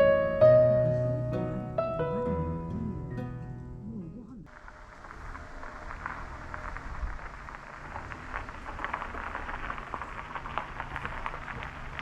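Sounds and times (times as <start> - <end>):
soft piano notes: 0.0 - 4.0
held low bass: 0.0 - 7.2.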